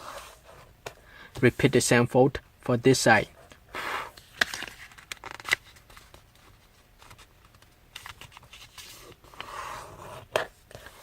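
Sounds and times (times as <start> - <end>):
paper rustling and scraping: 8.0 - 11.0.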